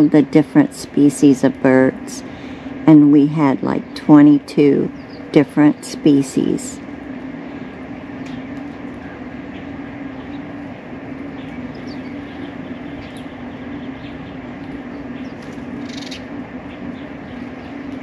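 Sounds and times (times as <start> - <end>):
steady low hum: 0.0 - 18.0
birds chirping: 3.5 - 18.0
high bird call: 11.4 - 16.3.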